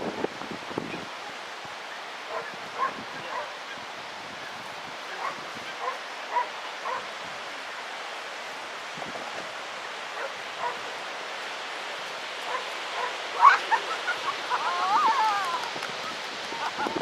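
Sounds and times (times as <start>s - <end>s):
steady background hiss: 0.0s - 17.0s
dog barking: 2.3s - 3.6s, 5.1s - 7.1s, 10.2s - 10.8s, 12.5s - 13.6s.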